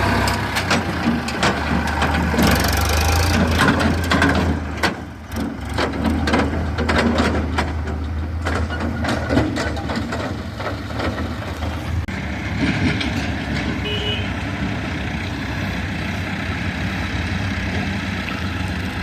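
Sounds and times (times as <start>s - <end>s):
heavy engine humming: 0.0s - 19.0s
sharp knocks and metallic clatter: 0.2s - 14.0s.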